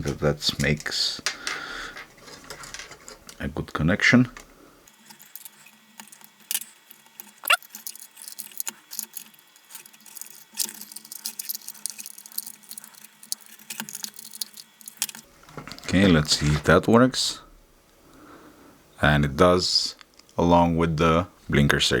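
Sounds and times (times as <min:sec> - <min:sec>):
light metallic rattling: 0:00.0 - 0:03.5.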